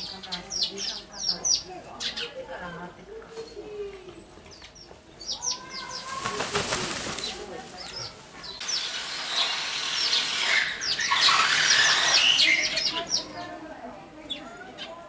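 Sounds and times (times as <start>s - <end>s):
small birds chirping: 0.0s - 15.0s
rustling noise: 6.0s - 8.6s.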